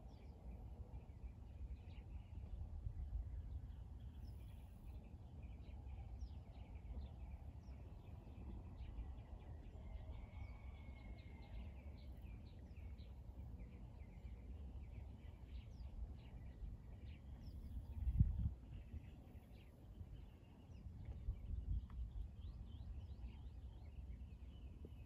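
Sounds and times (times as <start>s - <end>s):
faint low rumble: 0.0s - 25.0s.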